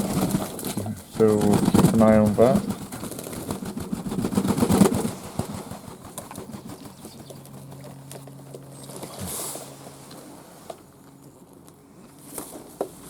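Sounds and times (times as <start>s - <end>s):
pigeon feet and beaks clicking: 0.0s - 9.2s
steady low hum: 0.0s - 13.0s.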